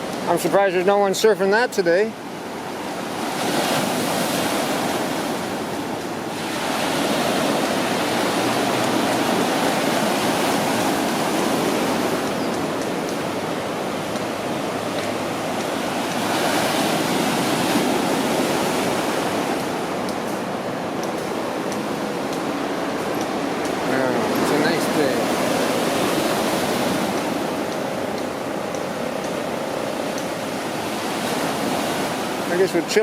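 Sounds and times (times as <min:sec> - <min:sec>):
ocean waves breaking: 0:00.0 - 0:33.0.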